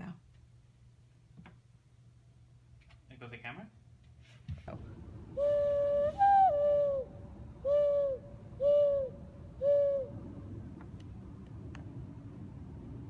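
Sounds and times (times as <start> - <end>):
person doing hooting bird call: 5.3 - 10.2.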